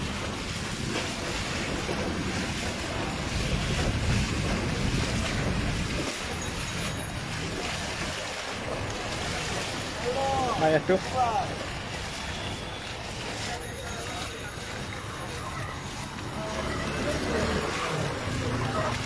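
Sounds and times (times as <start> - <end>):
wind buffeting microphone: 0.0 - 10.6
rushing floodwater: 0.0 - 19.0.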